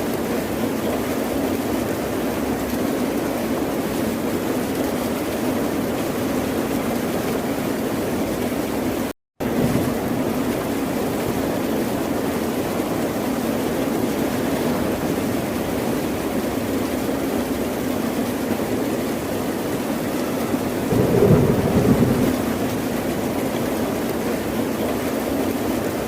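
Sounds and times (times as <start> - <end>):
ocean surf rushing: 13.6 - 16.7, 20.5 - 24.2.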